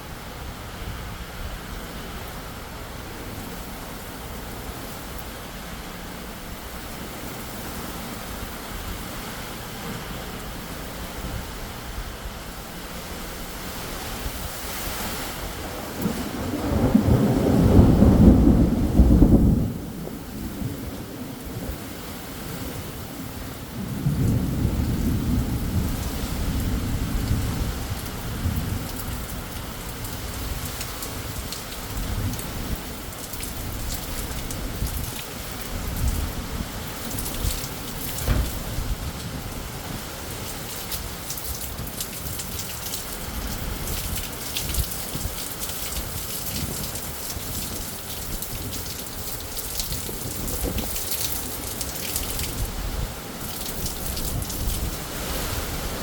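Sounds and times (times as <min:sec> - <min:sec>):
steady rain: 0:00.0 - 0:56.0
thunder rolling: 0:15.6 - 0:21.8, 0:23.7 - 0:30.7, 0:35.7 - 0:40.0
close raindrops crackling: 0:23.7 - 0:56.0.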